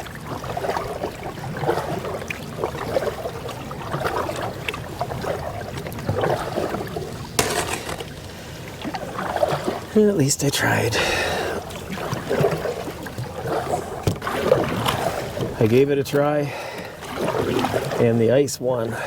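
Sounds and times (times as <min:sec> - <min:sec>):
canoe paddle strokes: 0:00.0 - 0:19.0
water swirling around hull: 0:00.0 - 0:19.0
sharp splash: 0:11.9 - 0:15.7.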